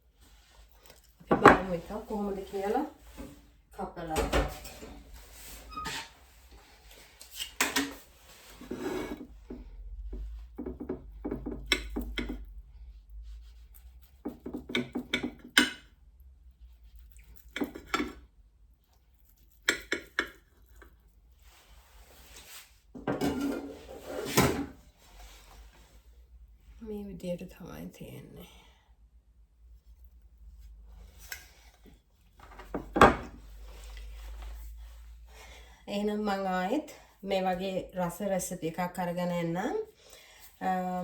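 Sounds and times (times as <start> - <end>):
knife scraping a dish: 8.5 - 9.3, 23.2 - 24.6.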